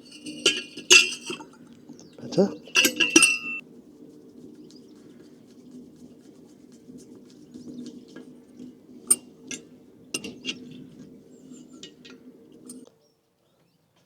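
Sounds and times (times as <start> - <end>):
metal clinks and taps: 0.0 - 1.7, 2.6 - 3.6, 9.0 - 12.8
steady low hum: 0.0 - 12.8.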